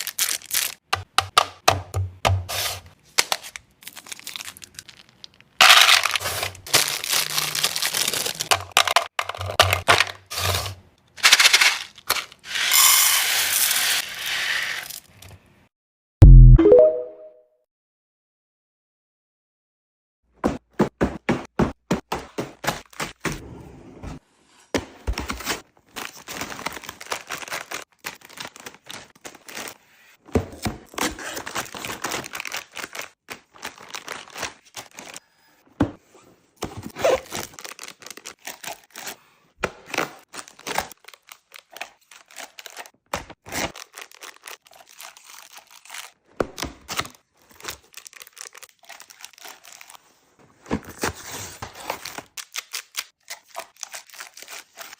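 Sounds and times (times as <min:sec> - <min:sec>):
wrappers crinkling and tearing: 0:00.0 - 0:00.8, 0:03.3 - 0:08.8, 0:25.9 - 0:29.8, 0:31.2 - 0:35.2, 0:37.1 - 0:39.1, 0:40.2 - 0:46.2, 0:46.9 - 0:50.2, 0:51.9 - 0:54.9.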